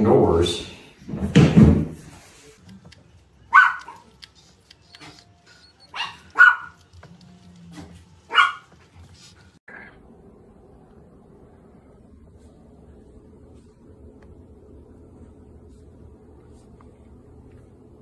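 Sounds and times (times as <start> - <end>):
dog barking: 3.5 - 4.2, 5.9 - 6.9, 7.7 - 8.8.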